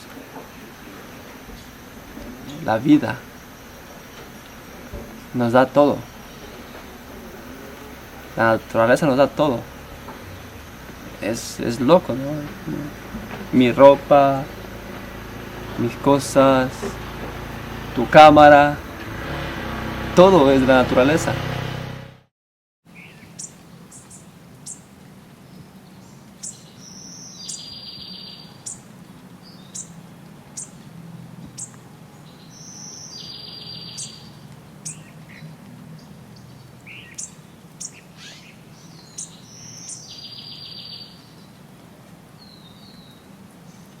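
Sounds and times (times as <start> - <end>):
high bird chirps: 22.9 - 24.8, 26.4 - 28.9, 29.5 - 30.0, 30.6 - 30.8, 31.6 - 41.5
buzzy bird call: 32.5 - 35.4, 36.9 - 41.3.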